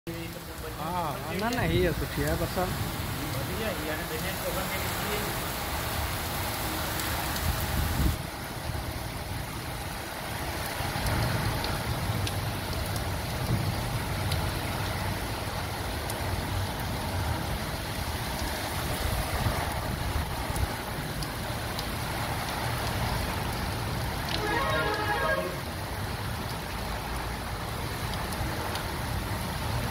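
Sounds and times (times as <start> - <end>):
heavy rain on concrete: 0.1 - 29.9.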